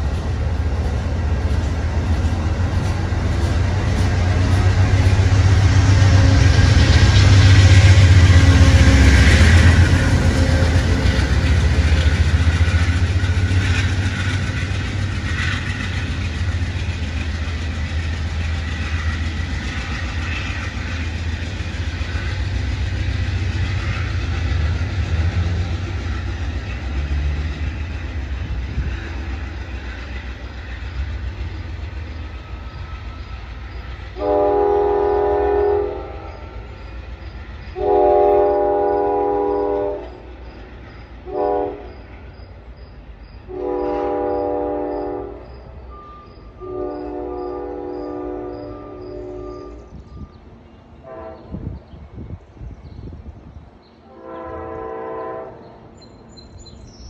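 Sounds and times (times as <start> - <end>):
passenger train rumbling past: 0.0 - 57.0
train horn: 4.5 - 12.1, 34.0 - 36.7, 37.7 - 40.3, 41.2 - 42.2, 43.5 - 50.3, 51.0 - 51.9, 54.0 - 55.9.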